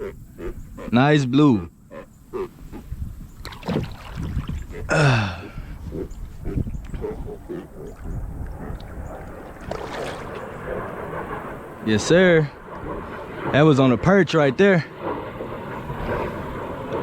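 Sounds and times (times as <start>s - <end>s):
low rumble: 4.4s - 14.0s
man exclaiming: 4.9s - 5.6s.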